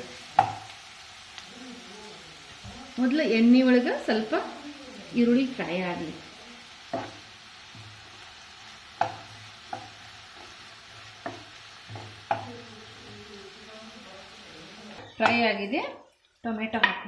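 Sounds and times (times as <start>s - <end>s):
onions sizzling in oil: 0.0s - 17.0s
utensil knocking against pan: 11.2s - 12.5s.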